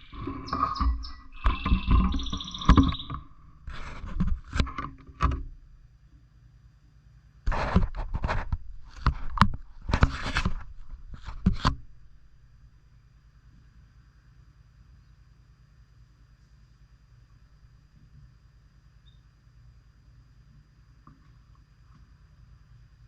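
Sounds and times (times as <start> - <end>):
bird chirps: 0.0 - 3.5
birds scraping and rustling in cage: 0.0 - 5.6, 7.5 - 12.2.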